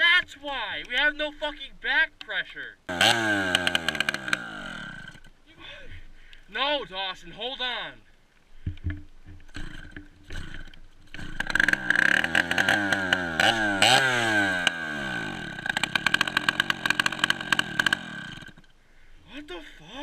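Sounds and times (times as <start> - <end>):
dirt bike engine revving: 2.9 - 5.3, 9.5 - 18.7.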